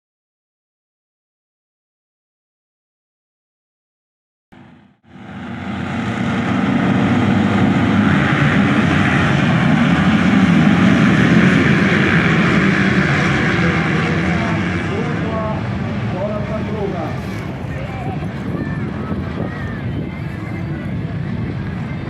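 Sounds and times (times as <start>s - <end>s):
motocross bike engines droning: 5.1s - 22.0s.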